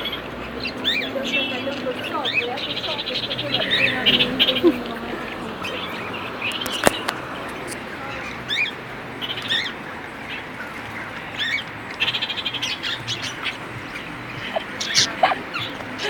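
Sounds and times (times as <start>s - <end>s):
parrot chirping: 13.2s - 15.8s.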